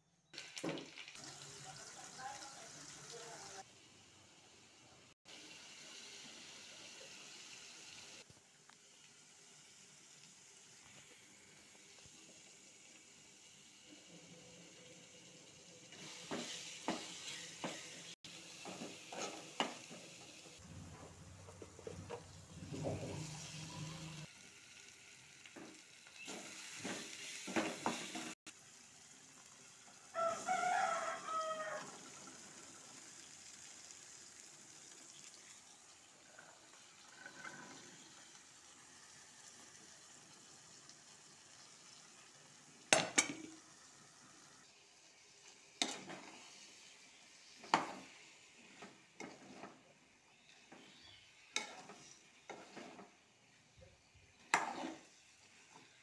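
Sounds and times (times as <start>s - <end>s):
food sizzling in a pan: 0.2s - 56.0s
spatula scraping a pan: 15.9s - 20.2s, 45.8s - 53.2s, 54.4s - 56.0s.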